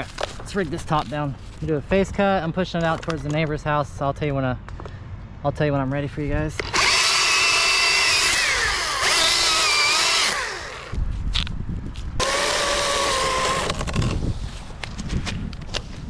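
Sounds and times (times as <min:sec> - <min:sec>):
chainsaw cutting wood: 0:06.6 - 0:11.0, 0:12.2 - 0:14.3.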